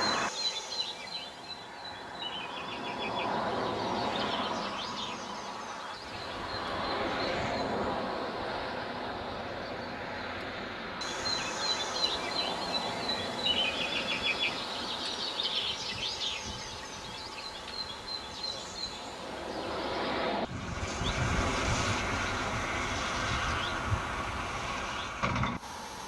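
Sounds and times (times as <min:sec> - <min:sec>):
small birds chirping: 0:00.0 - 0:07.8, 0:11.0 - 0:20.2
outdoor background noise: 0:00.0 - 0:26.0
low rumble: 0:19.2 - 0:25.2.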